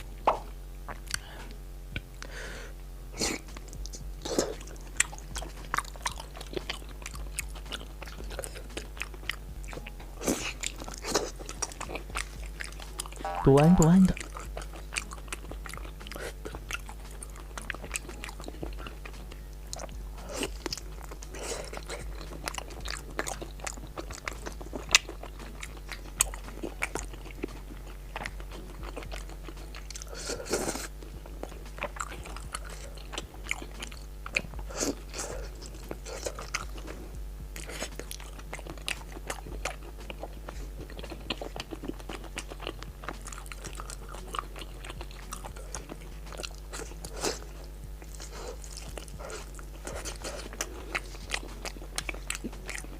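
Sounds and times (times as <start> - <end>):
person chewing and crunching: 0.0 - 2.6, 3.2 - 52.9.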